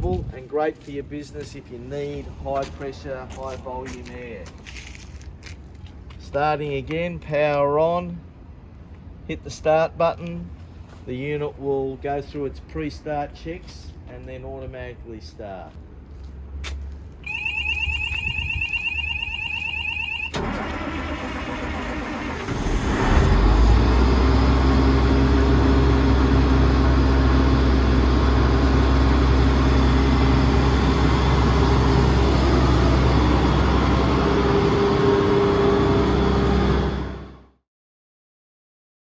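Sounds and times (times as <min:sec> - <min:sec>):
warbling warning buzzer: 0:17.2 - 0:20.6
diesel engine running: 0:20.3 - 0:37.5.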